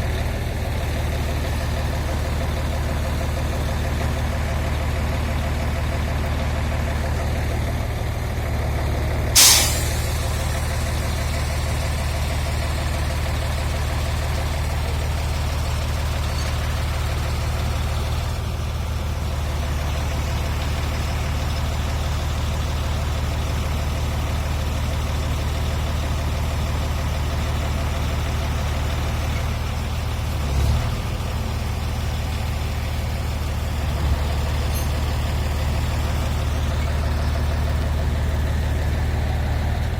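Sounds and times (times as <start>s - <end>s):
diesel engine running: 0.0s - 39.9s
air release hiss: 9.4s - 11.1s.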